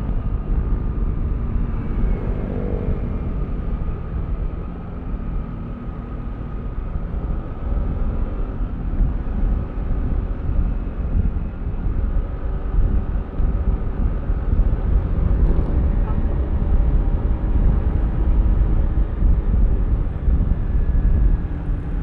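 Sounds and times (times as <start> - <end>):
low rumble of riding noise: 0.0 - 22.0.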